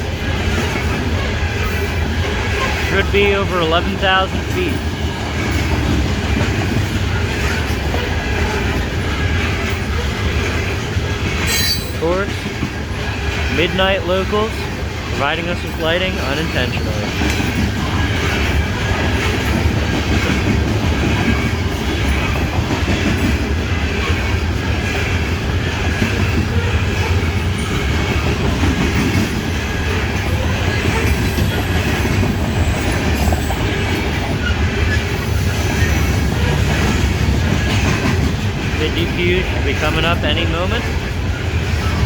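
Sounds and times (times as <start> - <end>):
freight train wheels rumbling: 0.0 - 42.0.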